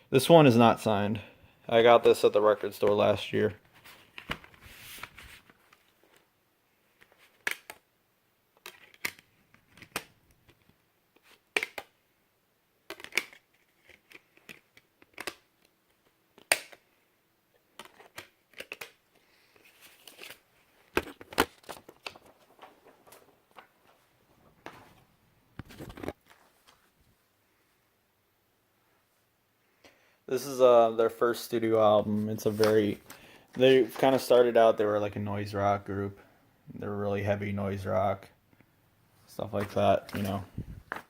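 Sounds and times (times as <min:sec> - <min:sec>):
packaging rustling: 0:03.6 - 0:06.3, 0:17.7 - 0:27.0, 0:32.0 - 0:34.6.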